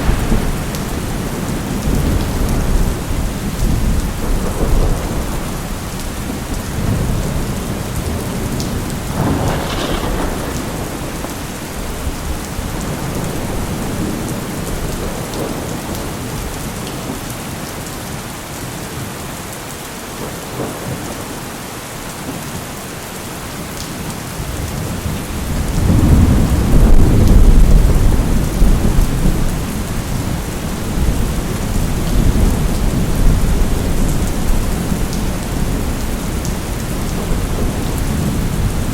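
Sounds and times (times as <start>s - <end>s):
rolling thunder: 0.0s - 16.6s, 24.5s - 38.9s
heavy rain: 0.0s - 38.9s.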